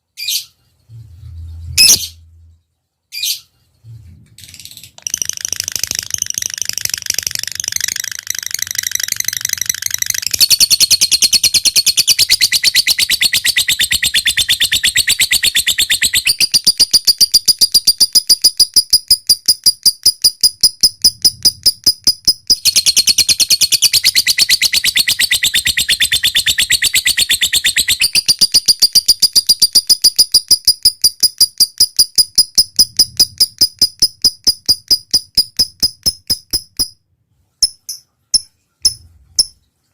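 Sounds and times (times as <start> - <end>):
lovebird trilling: 5.0 - 36.9.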